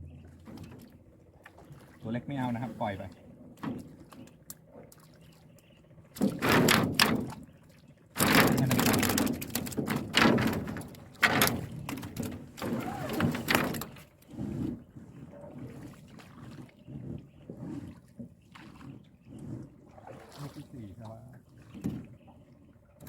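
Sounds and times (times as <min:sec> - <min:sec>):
splashes and thuds in boat: 0:00.0 - 0:23.0.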